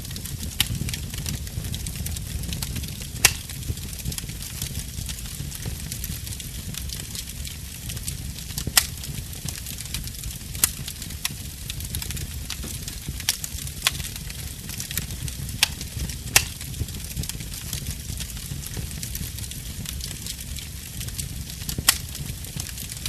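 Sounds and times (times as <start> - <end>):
low rumble of flames: 0.0 - 23.0
wood fire popping and snapping: 0.0 - 23.0.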